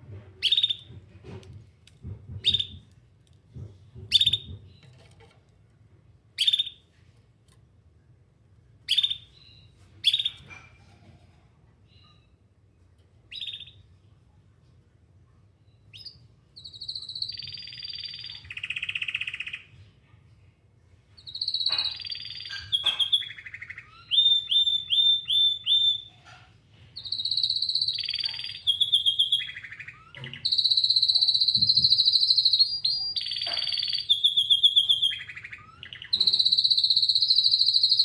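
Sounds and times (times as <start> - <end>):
canary singing: 0.4 - 1.0, 2.4 - 2.8, 4.1 - 4.6, 6.4 - 6.8, 8.9 - 10.6, 13.3 - 13.8, 15.9 - 19.7, 21.2 - 38.0.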